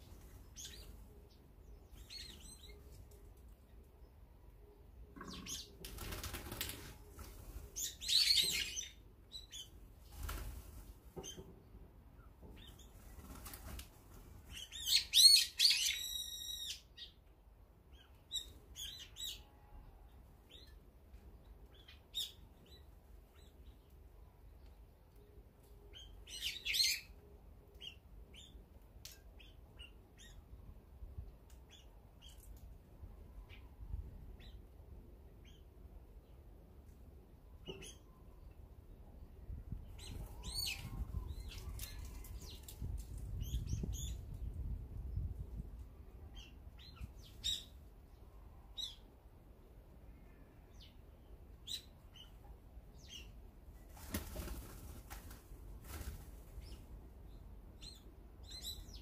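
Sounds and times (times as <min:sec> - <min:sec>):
shrill bird calls: 0:14.6 - 0:16.9.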